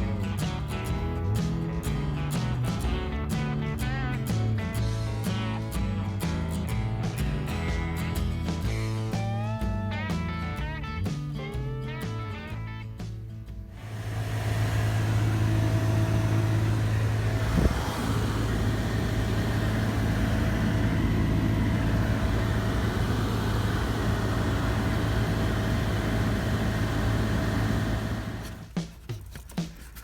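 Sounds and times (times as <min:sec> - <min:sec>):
air blower fan running: 0:13.7 - 0:29.0.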